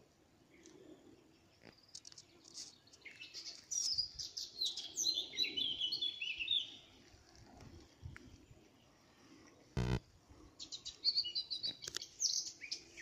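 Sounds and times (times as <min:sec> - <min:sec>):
songbird singing: 0:00.5 - 0:07.0, 0:10.5 - 0:13.0.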